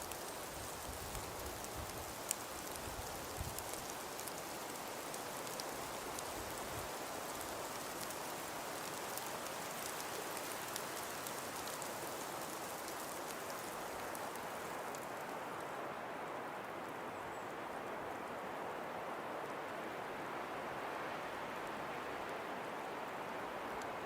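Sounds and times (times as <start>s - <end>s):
snow pattering on surfaces: 0.0s - 15.9s.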